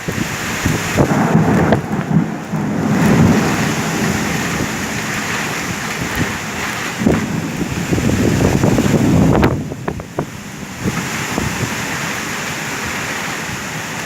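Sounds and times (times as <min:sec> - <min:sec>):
heavy rain pouring: 0:00.0 - 0:14.0
low rumble: 0:01.0 - 0:10.0.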